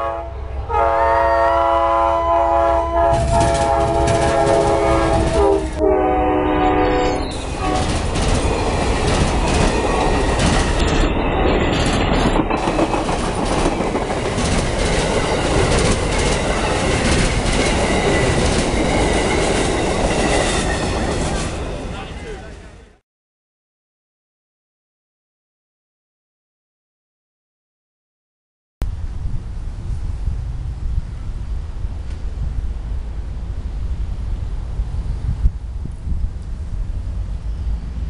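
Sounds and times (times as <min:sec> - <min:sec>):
train air horn: 0:00.0 - 0:08.0
train wheels clattering: 0:03.1 - 0:05.8, 0:07.2 - 0:22.6.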